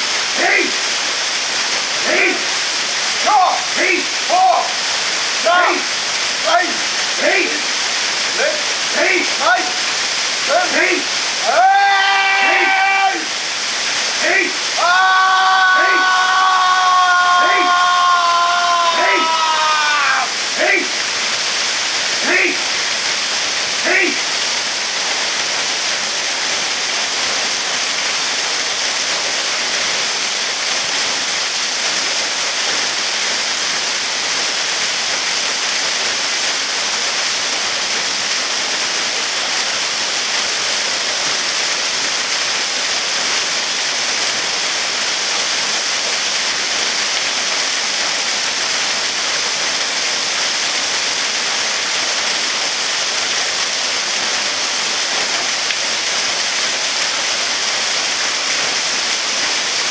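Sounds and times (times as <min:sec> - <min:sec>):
waterfall hissing: 0:00.0 - 0:59.9.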